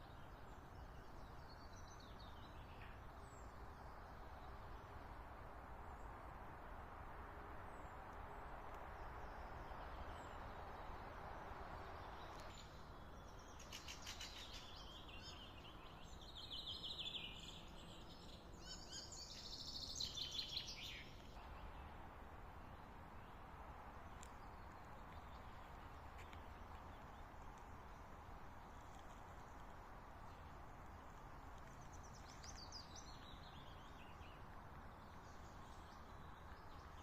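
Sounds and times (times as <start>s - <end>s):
outdoor background hiss: 0.0s - 37.0s
small bird chirping trills: 11.6s - 21.4s.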